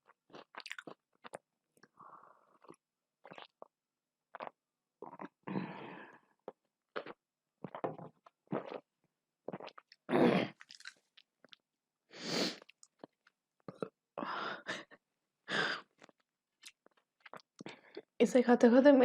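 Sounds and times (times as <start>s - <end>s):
chewing and biting: 0.3s - 1.4s.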